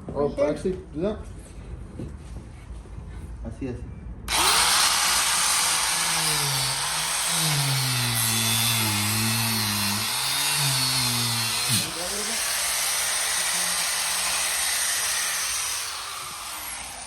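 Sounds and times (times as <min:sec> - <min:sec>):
angle grinder cutting metal: 0:04.3 - 0:17.0.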